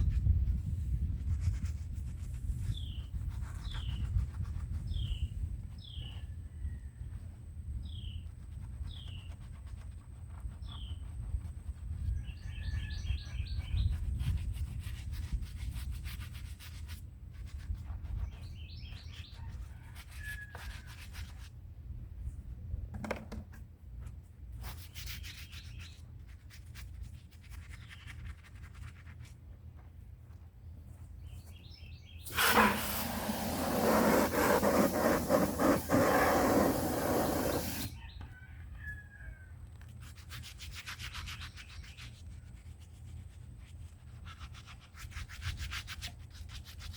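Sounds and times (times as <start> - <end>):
scrubbing concrete: 32.3 - 37.9.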